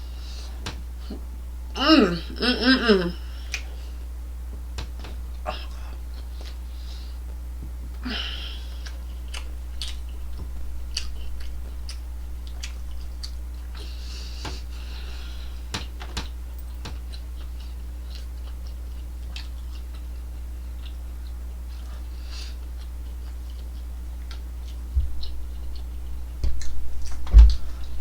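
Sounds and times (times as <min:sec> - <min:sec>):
wet chewing mouth clicks: 0:08.8 - 0:13.9, 0:22.7 - 0:27.3.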